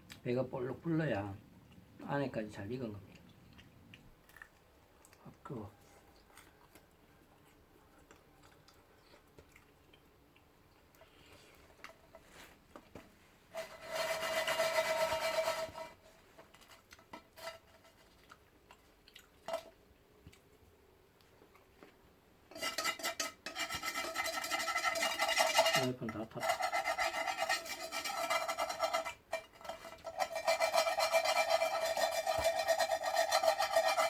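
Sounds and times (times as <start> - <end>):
utensil scraping frying pan: 13.5 - 18.2, 22.5 - 34.0.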